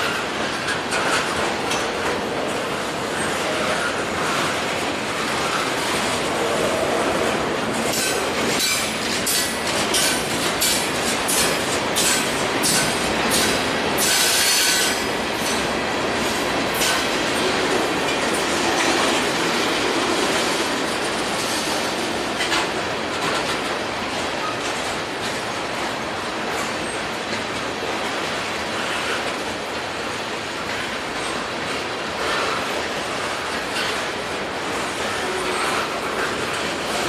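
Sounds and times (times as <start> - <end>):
wheels clacking over rail joints: 0.0 - 37.0.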